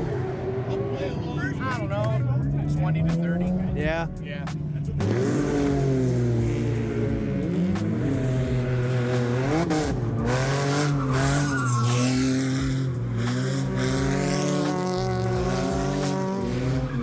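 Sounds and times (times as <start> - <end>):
car engine revving: 0.0 - 17.0
tyres squealing: 10.3 - 16.2.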